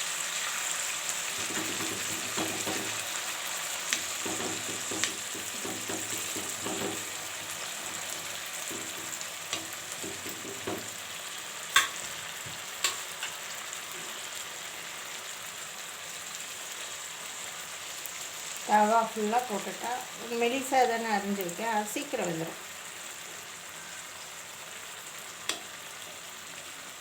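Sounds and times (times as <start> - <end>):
potato slices sizzling in oil: 0.0 - 27.0
utensil clicking on pan: 1.4 - 3.0, 3.9 - 7.1, 8.7 - 11.0, 11.7 - 12.1, 12.8 - 13.4.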